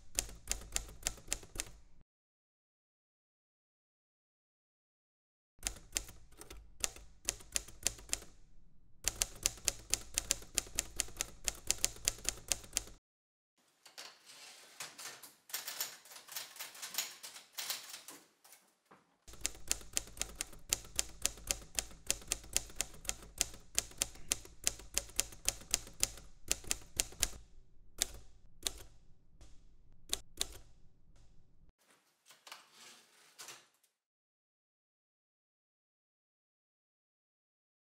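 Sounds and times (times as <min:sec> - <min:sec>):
typewriter key strikes: 0:09.1 - 0:13.0, 0:19.3 - 0:27.4.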